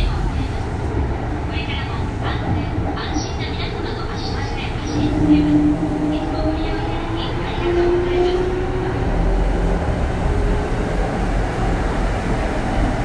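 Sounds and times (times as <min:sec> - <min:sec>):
rail rumble: 0:00.0 - 0:13.0.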